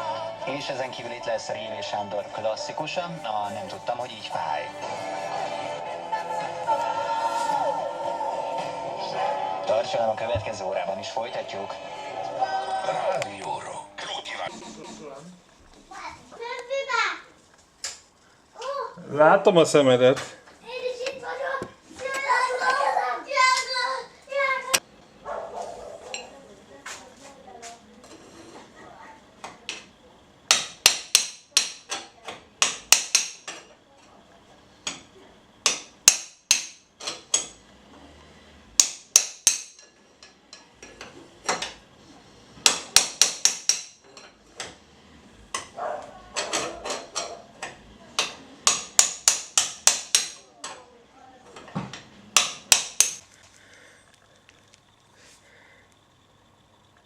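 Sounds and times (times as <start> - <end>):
hammer striking metal: 30.5 - 31.9, 32.6 - 33.4, 35.6 - 37.5, 38.8 - 39.8, 42.6 - 44.0, 48.7 - 50.4, 52.4 - 53.2.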